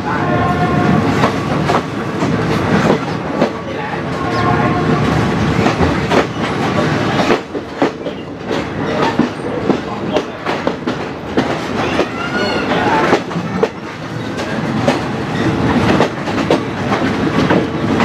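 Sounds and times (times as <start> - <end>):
train rumbling at speed: 0.0 - 18.0
wheels clacking over rail joints: 1.1 - 18.0.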